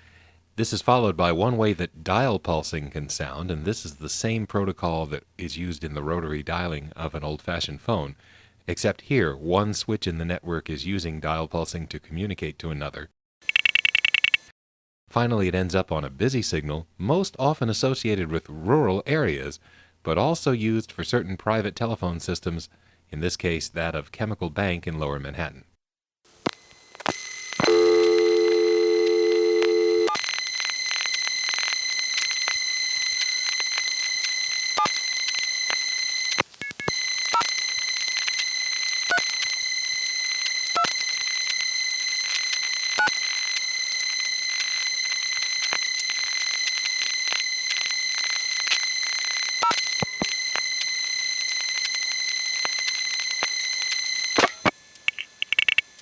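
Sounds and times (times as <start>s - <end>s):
high telephone line whine: 26.4s - 56.0s
line clicks: 29.0s - 56.0s.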